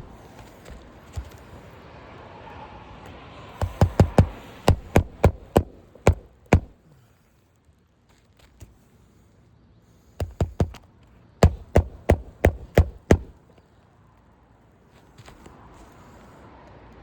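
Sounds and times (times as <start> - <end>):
hammer driving nails into shingle: 3.6 - 6.8, 10.2 - 10.8, 11.4 - 13.4.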